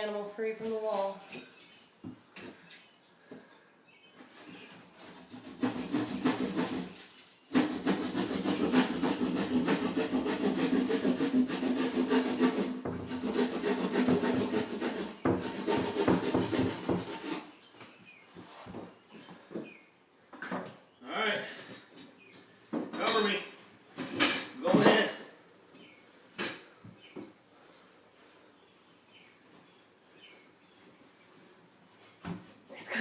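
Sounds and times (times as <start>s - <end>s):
saw cutting into a wall: 5.0s - 17.5s.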